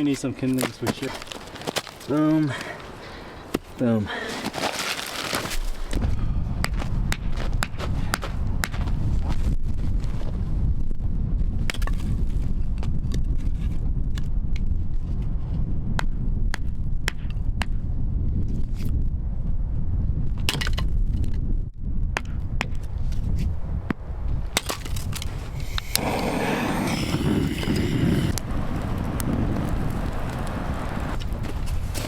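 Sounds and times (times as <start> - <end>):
firewood snapping: 0.0 - 2.8, 24.6 - 32.0
wind rumble on microphone: 5.6 - 32.0.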